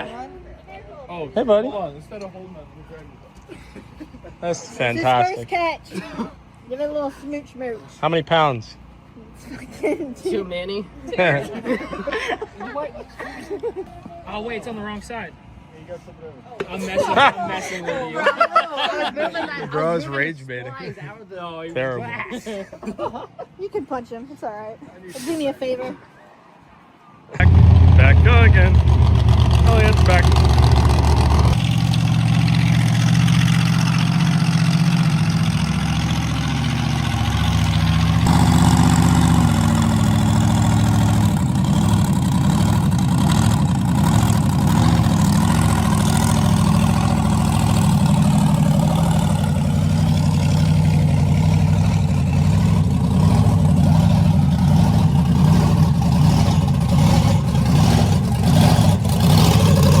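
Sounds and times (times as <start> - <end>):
truck engine idling: 27.4 - 60.0.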